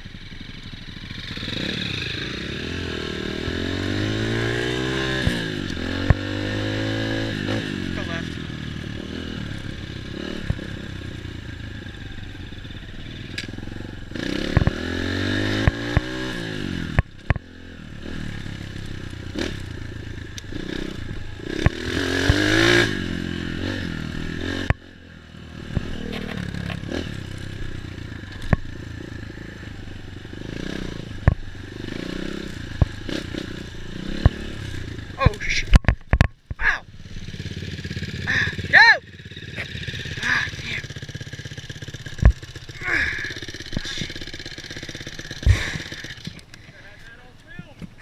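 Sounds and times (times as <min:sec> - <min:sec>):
dirt bike engine revving: 0:00.0 - 0:47.1
sharp knocks and rattling: 0:35.6 - 0:36.6.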